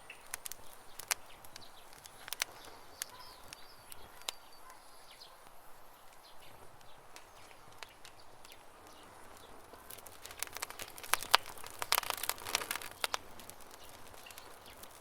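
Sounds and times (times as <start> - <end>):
birds chirping: 0.0 - 15.0
campfire crackling and popping: 0.0 - 15.0.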